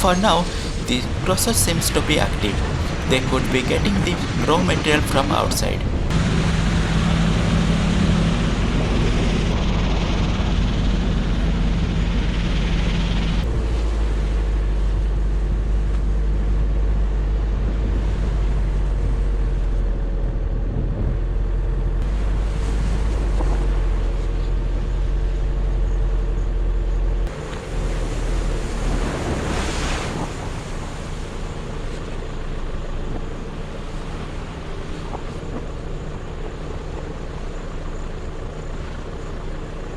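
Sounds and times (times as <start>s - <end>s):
wind buffeting microphone: 0.5s - 14.2s.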